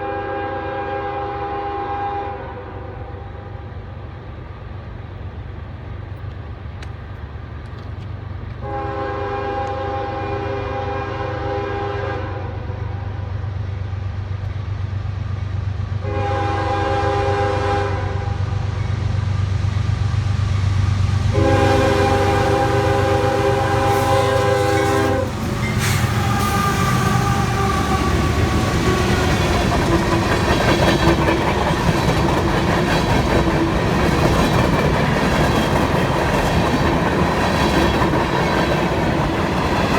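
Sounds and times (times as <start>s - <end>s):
locomotive air horn blasts: 0.0s - 3.5s, 8.6s - 13.3s, 16.0s - 18.6s, 21.3s - 29.7s
locomotive engines droning: 0.0s - 39.9s
train wheels clacking over rails: 18.2s - 39.9s.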